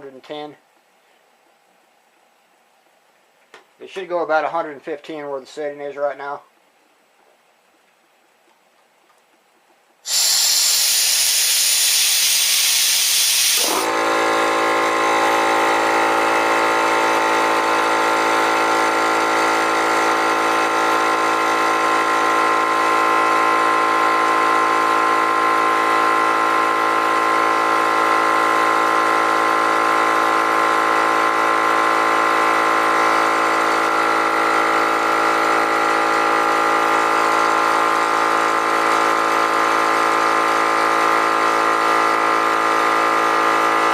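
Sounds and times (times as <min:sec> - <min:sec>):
compressed air hissing: 0:10.0 - 0:14.0
air compressor motor running: 0:10.0 - 0:43.9.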